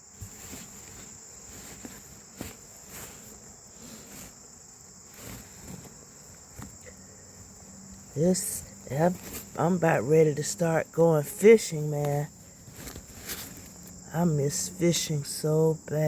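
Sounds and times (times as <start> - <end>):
soft handling rustles: 0.0 - 10.0, 11.4 - 14.1
crickets chirring: 0.0 - 16.0.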